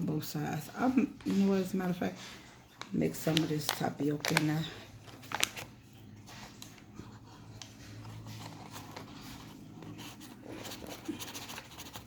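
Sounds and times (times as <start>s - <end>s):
powder scraping and rustling: 3.1s - 12.0s.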